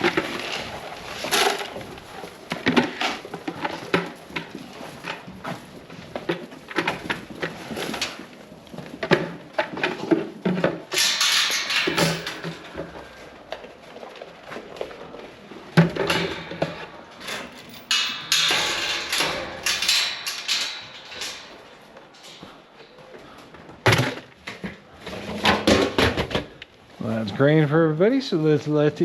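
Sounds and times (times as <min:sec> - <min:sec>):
knocks and rattles of scoop and gates: 0:00.0 - 0:26.6.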